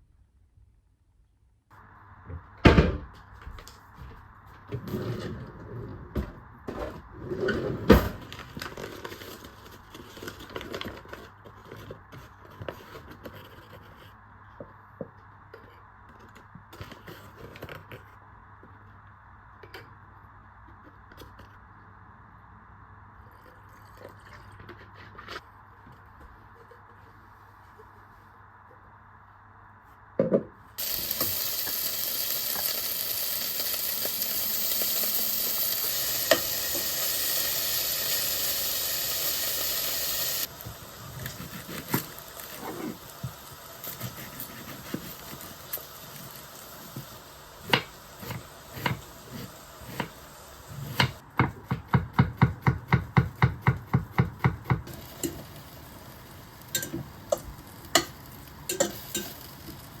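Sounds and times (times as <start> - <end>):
food sizzling in a frying pan: 30.8 - 51.2, 54.4 - 60.0
cooking utensils knocking and clinking: 56.8 - 59.5.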